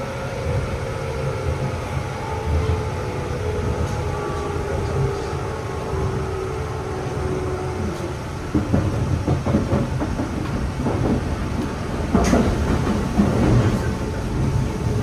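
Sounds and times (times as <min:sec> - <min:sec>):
steady train whine: 0:00.0 - 0:15.0
train wheels rumbling on rail: 0:00.0 - 0:15.0
clacking over rail joints: 0:07.9 - 0:15.0.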